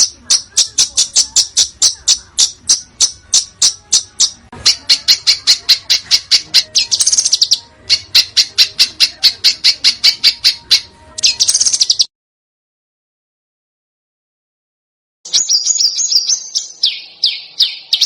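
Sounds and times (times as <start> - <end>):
bird harsh rattling trill: 0.0 - 12.1
songbird sharp high chirps: 0.0 - 12.1, 15.3 - 18.0.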